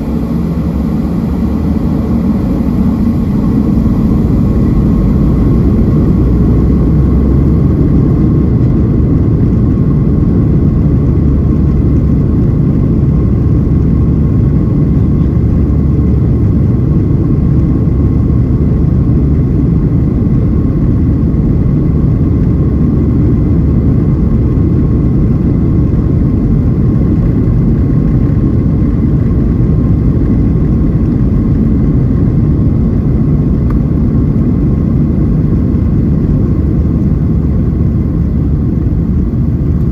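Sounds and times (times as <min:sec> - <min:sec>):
aircraft cabin jet engine rumble: 0:00.0 - 0:39.9
thin steady whine: 0:00.0 - 0:39.9.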